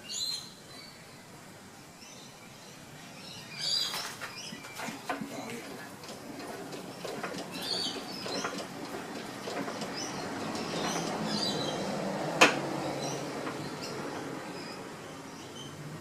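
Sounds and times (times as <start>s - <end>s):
diesel engine turned over by hand: 4.8s - 14.4s.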